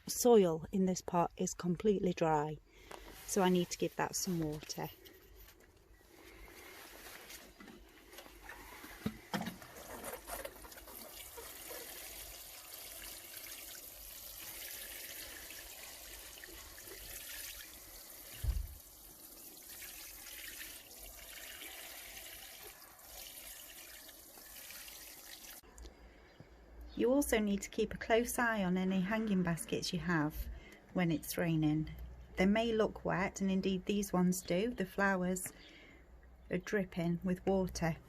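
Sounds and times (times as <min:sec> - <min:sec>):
water pouring into soil: 0:10.8 - 0:25.6.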